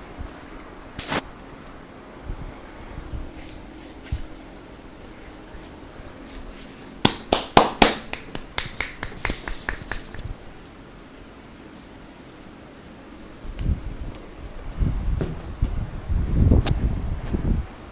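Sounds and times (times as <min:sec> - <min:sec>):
hands slapping a back: 0:07.0 - 0:10.3
soft thumps: 0:15.1 - 0:15.9.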